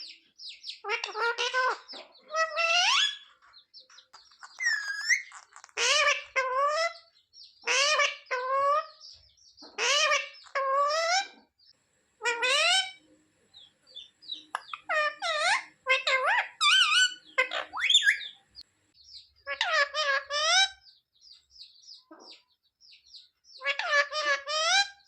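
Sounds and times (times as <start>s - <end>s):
parrot shrill calls: 0.8s - 3.5s, 4.2s - 9.0s, 9.8s - 11.3s, 12.2s - 13.0s, 14.0s - 18.4s, 19.4s - 20.8s, 23.6s - 25.0s.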